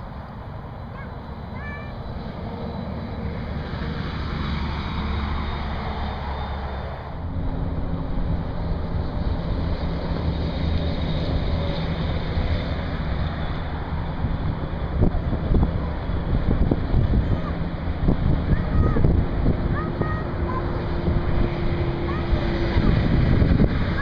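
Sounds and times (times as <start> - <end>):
low truck engine note: 0.0 - 24.0
truck engines pulling under load: 0.0 - 24.0
tyre and wind noise: 14.0 - 24.0.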